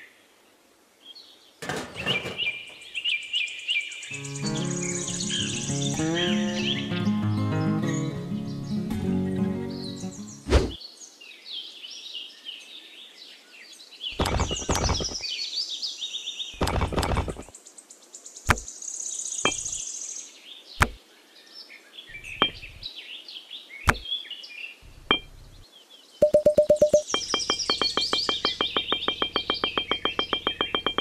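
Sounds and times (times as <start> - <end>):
birds chirping: 1.1 - 10.8, 13.9 - 15.5, 16.1 - 21.1, 21.7 - 31.0
rapid clattering: 1.6 - 2.9, 14.2 - 15.2, 16.6 - 17.5, 26.3 - 31.0
clay bricks clicking on sand: 14.1 - 15.2, 16.6 - 17.5.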